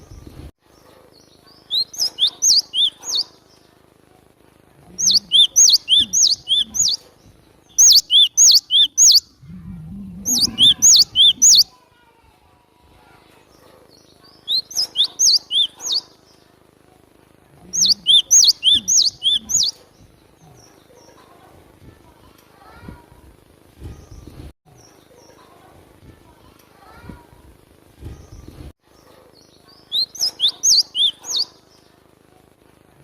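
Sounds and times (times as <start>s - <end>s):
bird chirping: 0.8s - 3.7s, 4.9s - 11.7s, 13.9s - 16.5s, 17.6s - 21.2s, 28.3s - 31.9s.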